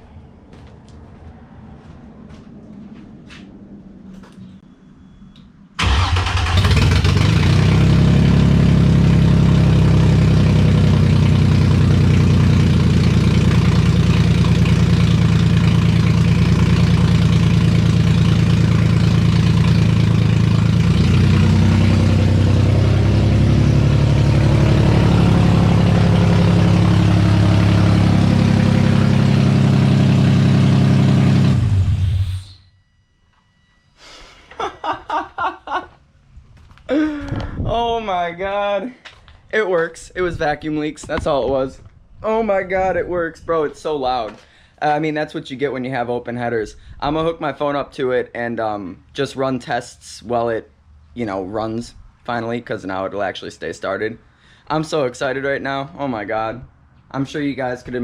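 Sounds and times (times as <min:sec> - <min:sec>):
loud car engine running: 0:05.8 - 0:32.6.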